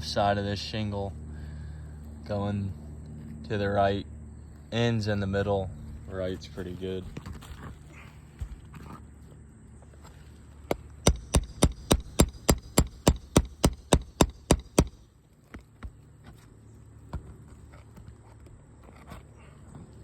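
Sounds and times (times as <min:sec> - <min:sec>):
hammer tapping: 0:11.0 - 0:15.0.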